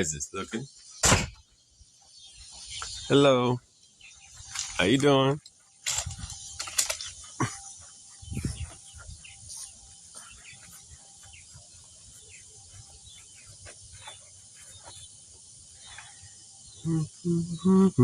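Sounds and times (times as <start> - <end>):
high insect trill: 0.0 - 18.0.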